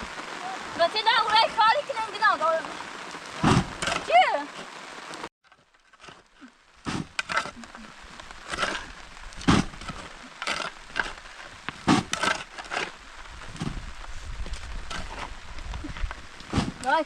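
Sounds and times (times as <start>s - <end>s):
sharp irregular cracks and knocks: 3.2s - 4.8s, 5.4s - 17.0s.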